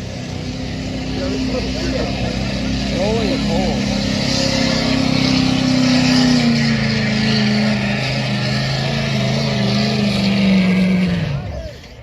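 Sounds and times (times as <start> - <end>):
engine running at high revs: 0.0 - 12.0.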